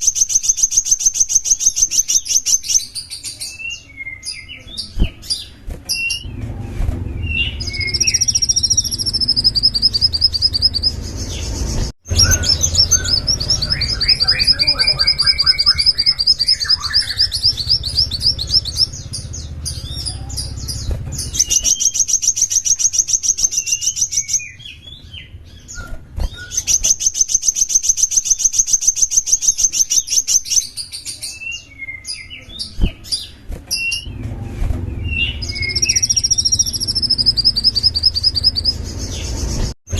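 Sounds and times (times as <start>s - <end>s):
songbird trilling and chirping: 0.0s - 6.4s, 7.2s - 34.2s, 35.0s - 39.7s
low background rumble: 5.0s - 21.8s.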